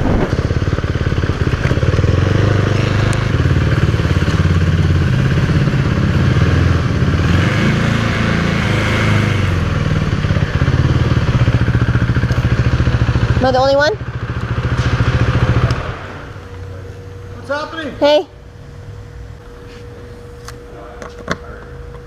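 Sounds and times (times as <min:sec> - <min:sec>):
motorcycle engine at low revs: 0:00.0 - 0:17.4.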